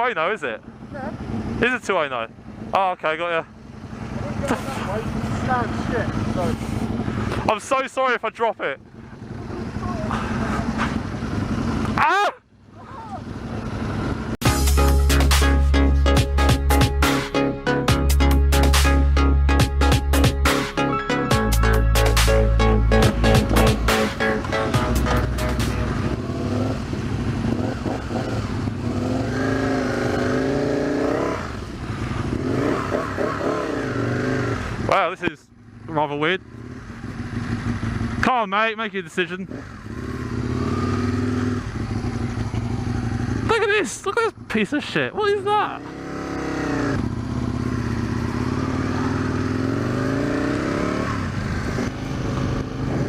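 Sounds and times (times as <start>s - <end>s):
motorcycle engine accelerating: 0.0s - 53.0s
music: 14.4s - 26.1s.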